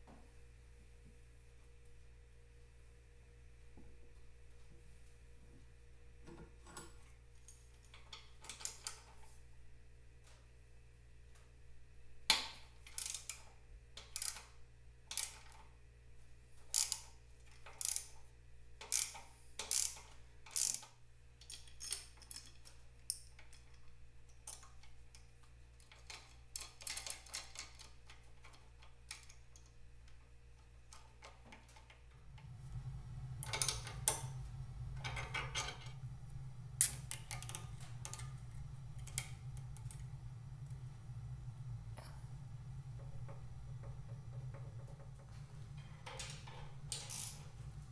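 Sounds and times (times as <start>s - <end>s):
steady low hum: 0.0s - 47.9s
ratchet clicking: 18.8s - 20.9s.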